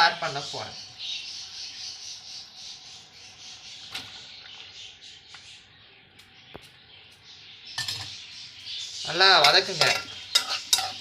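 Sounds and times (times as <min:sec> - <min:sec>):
sauce bubbling and sizzling in pan: 0:09.3 - 0:11.0.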